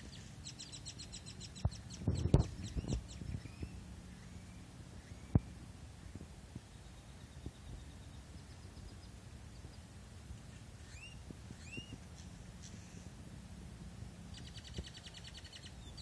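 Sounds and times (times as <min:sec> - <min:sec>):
fast bird trill: 0:00.0 - 0:05.4, 0:14.3 - 0:16.0
bird chirps: 0:00.0 - 0:09.8, 0:10.8 - 0:13.1, 0:14.3 - 0:16.0
low hum: 0:00.0 - 0:16.0.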